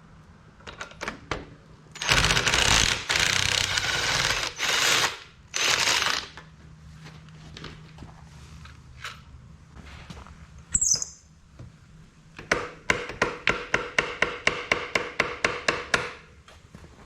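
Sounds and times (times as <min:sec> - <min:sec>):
high-pitched squeak: 0:10.7 - 0:11.2.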